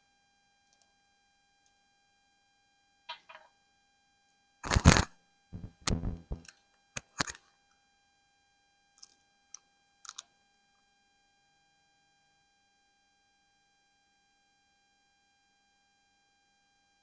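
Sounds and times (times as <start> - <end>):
knocks and thumps: 4.6 - 6.5
faint electrical whine: 4.6 - 7.4.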